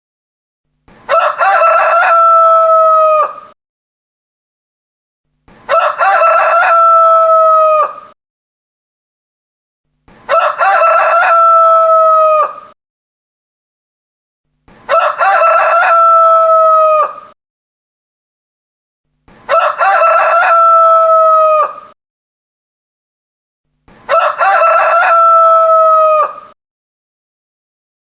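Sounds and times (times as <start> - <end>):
rooster crowing: 1.1 - 3.6, 5.7 - 8.2, 10.3 - 12.8, 14.9 - 17.4, 19.5 - 22.0, 24.1 - 26.6.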